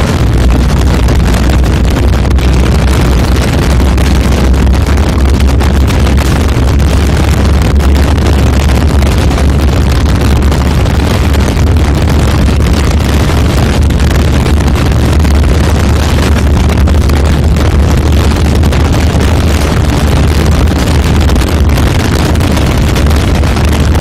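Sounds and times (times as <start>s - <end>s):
motorcycle engine at speed: 0.0s - 24.0s
wind rushing over microphone: 0.0s - 24.0s.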